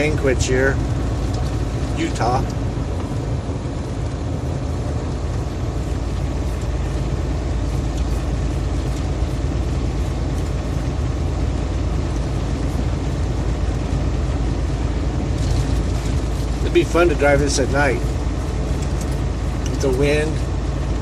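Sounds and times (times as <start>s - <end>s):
truck diesel engine drone: 0.0s - 21.0s.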